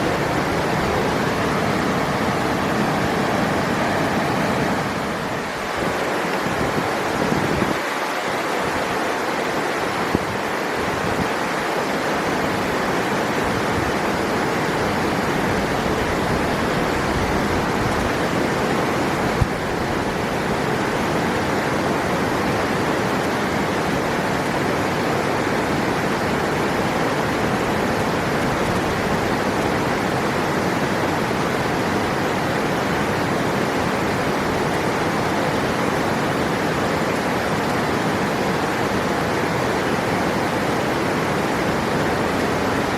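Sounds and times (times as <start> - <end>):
river water rushing: 0.0 - 42.9.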